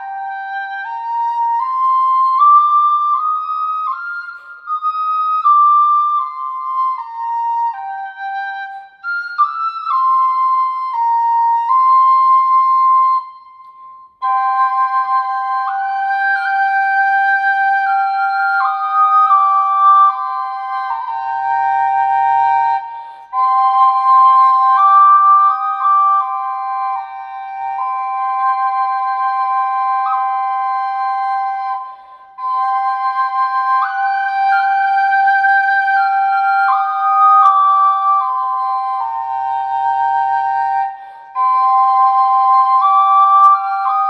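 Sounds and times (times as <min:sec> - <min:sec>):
flute melody: 0:00.0 - 0:44.0
breath: 0:22.8 - 0:23.4, 0:31.8 - 0:32.4, 0:40.9 - 0:41.4.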